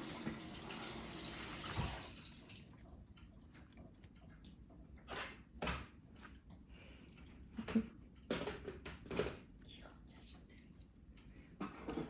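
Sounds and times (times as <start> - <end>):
tap water running: 0.0 - 3.0.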